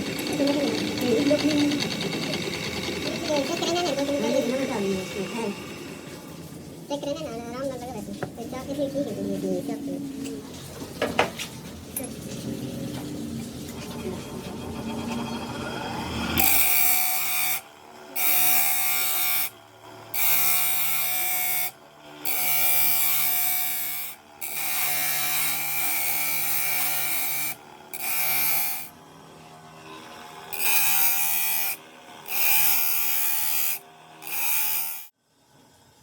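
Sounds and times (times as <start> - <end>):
electric power tool whining: 0.0 - 6.4.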